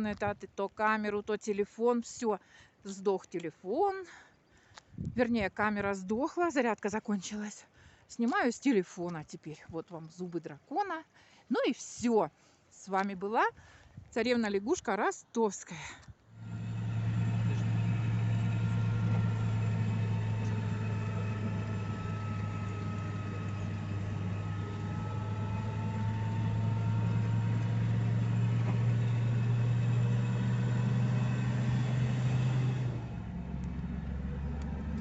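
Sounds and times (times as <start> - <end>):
vehicle engine droning: 16.3 - 35.0.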